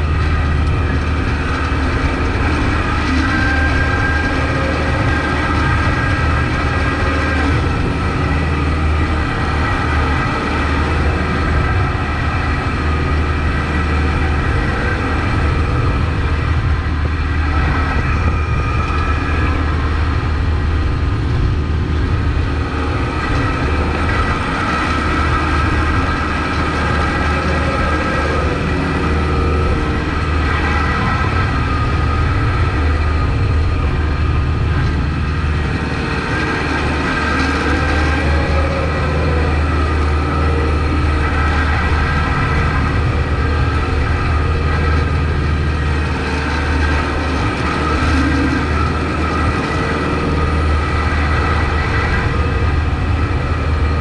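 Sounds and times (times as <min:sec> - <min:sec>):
high whine: 0:00.0 - 0:54.0
tractor diesel engine running: 0:00.0 - 0:54.0.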